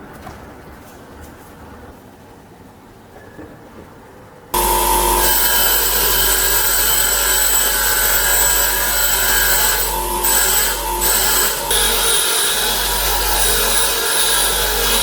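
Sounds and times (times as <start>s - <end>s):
electric power tool running: 4.6s - 15.0s.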